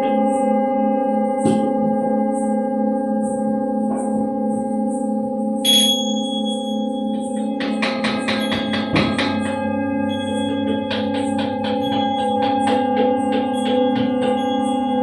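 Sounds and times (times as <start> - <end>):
singing bowls and gong ringing: 0.0 - 15.0
small bell chime: 5.6 - 7.6.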